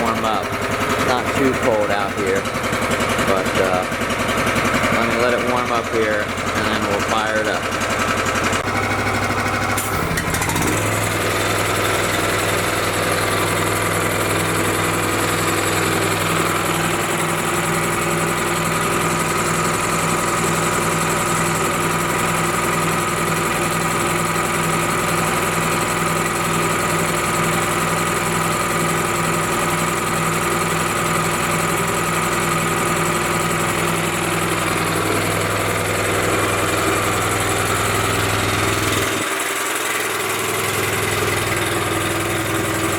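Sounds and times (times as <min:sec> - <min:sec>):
gasoline engine idling: 0:00.0 - 0:42.9.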